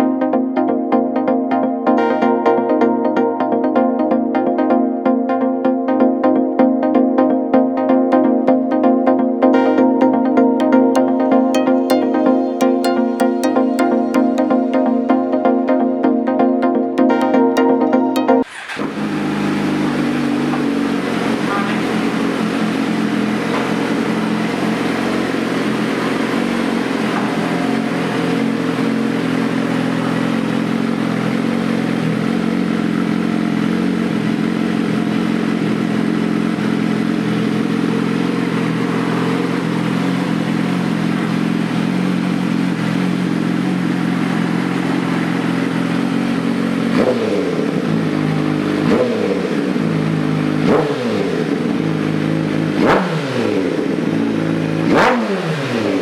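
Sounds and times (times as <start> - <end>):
motorcycle engine revving: 18.4 - 56.0
motorcycle engine idling: 18.5 - 55.2.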